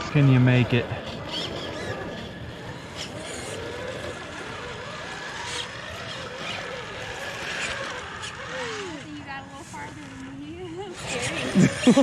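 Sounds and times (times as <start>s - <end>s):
small electric motors whining: 0.0s - 12.0s.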